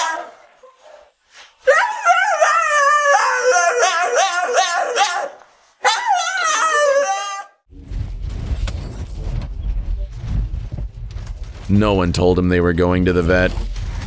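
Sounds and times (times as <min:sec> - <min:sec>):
dog whining and howling: 0:01.7 - 0:07.6.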